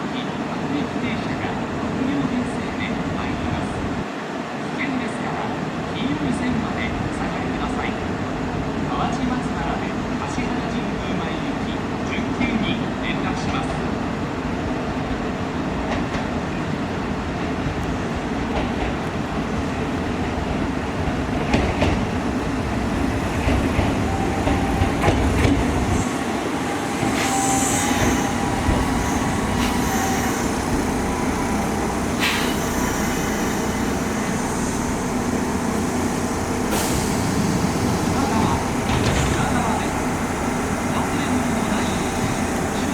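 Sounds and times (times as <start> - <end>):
electric train rumbling: 5.4 - 42.9
high wheel squeal: 23.2 - 42.9.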